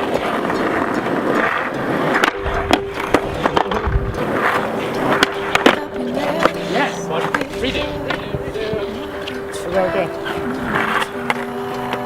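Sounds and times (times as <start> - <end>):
skateboard pop: 0.0 - 9.5
skateboard clattering and knocking: 0.0 - 12.0
skateboard wheels rolling on pavement: 0.0 - 12.0.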